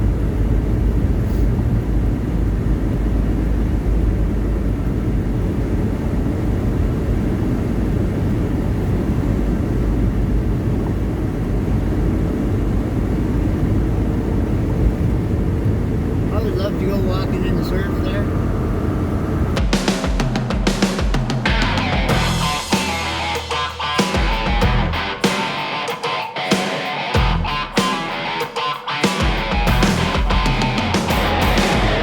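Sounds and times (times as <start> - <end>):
road noise: 0.0 - 32.0
truck engine drone: 15.5 - 32.0.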